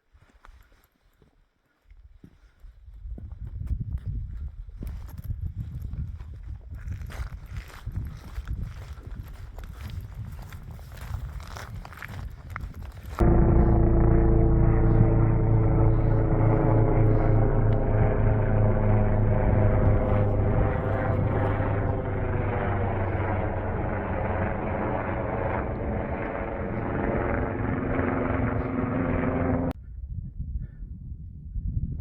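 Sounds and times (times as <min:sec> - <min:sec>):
aircraft engine drone: 0:13.2 - 0:29.8.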